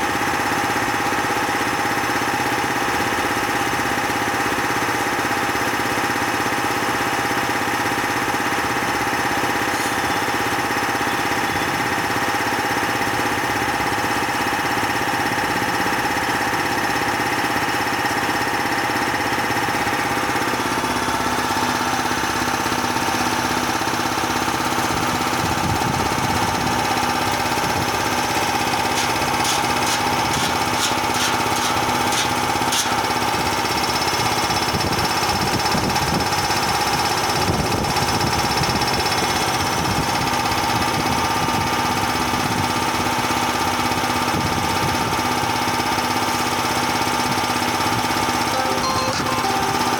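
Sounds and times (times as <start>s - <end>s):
compressor knocking: 25.4s - 34.2s.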